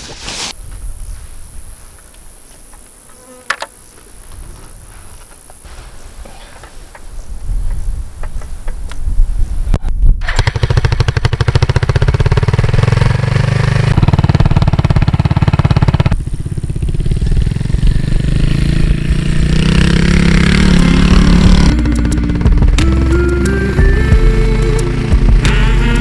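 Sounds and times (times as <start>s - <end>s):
motorcycle engine accelerating: 10.2s - 26.0s.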